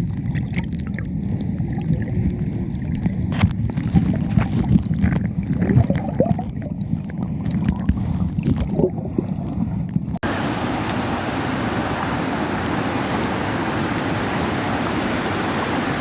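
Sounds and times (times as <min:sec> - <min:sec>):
waterfall and rushing stream: 0:10.2 - 0:16.0.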